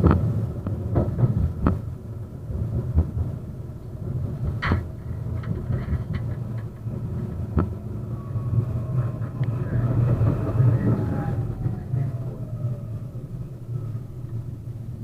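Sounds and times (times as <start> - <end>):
tram rumbling on rails: 0.0 - 15.0.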